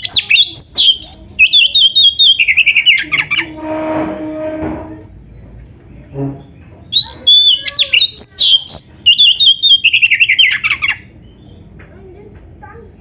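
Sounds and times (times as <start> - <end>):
bird singing rapid whistles: 0.0 - 3.5, 6.9 - 11.0
low harsh sound: 3.3 - 5.1, 5.8 - 6.8.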